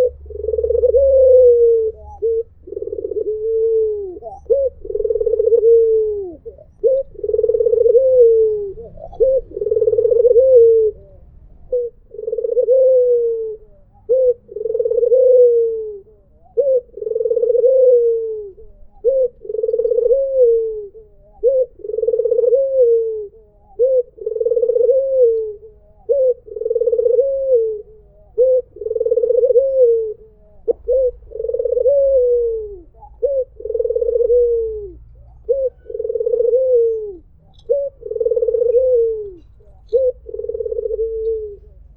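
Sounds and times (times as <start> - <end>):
dove cooing: 0.0 - 41.9.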